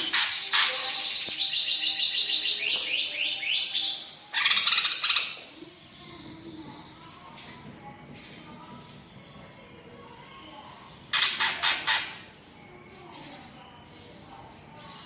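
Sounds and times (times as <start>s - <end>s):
bird singing: 0.0s - 5.4s, 6.6s - 15.0s.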